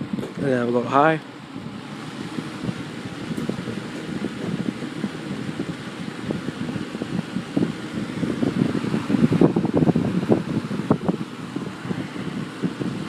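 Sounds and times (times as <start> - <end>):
box fan blowing air: 0.0 - 13.0.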